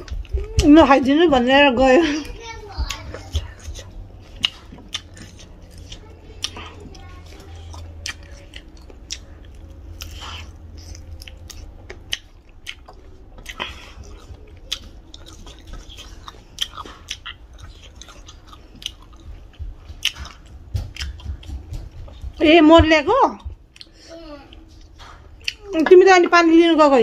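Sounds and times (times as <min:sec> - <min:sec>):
chewing and biting chicken: 0:02.3 - 0:22.3, 0:23.7 - 0:25.8
mouth clicks and smacks: 0:02.8 - 0:06.8, 0:07.8 - 0:22.0.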